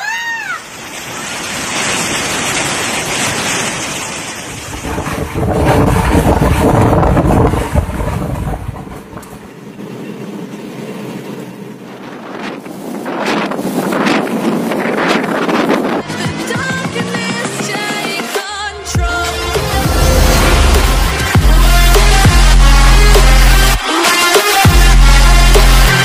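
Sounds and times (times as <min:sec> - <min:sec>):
wind buffeting microphone: 0:04.5 - 0:17.7.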